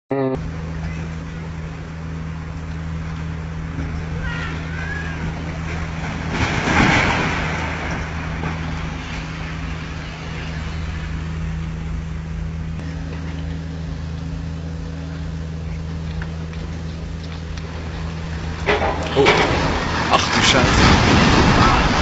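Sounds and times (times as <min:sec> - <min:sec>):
loud burst of noise: 0:00.4 - 0:15.7, 0:17.7 - 0:22.0
heavy machine engine running: 0:00.4 - 0:22.0.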